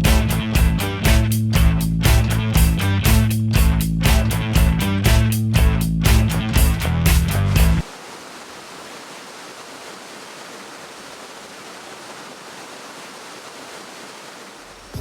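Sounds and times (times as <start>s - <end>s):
music: 0.0s - 7.8s.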